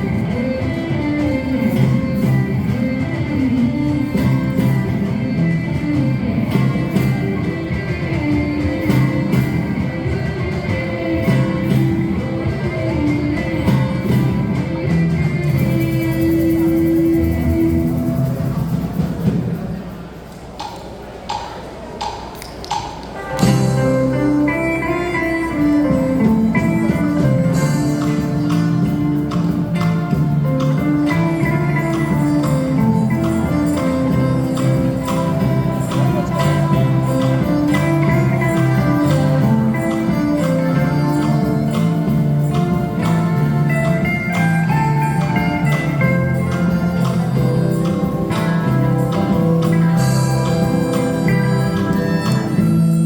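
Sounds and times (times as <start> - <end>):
strummed guitar: 0.0 - 19.7, 22.8 - 53.0
steady bass: 0.0 - 19.9, 23.3 - 53.0
live instrumental ensemble music: 0.0 - 53.0.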